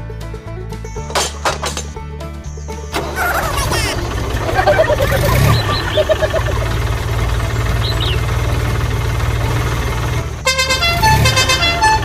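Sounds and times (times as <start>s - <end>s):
pulsing engine rumble: 3.0s - 12.0s
horn-like tune: 10.4s - 12.0s.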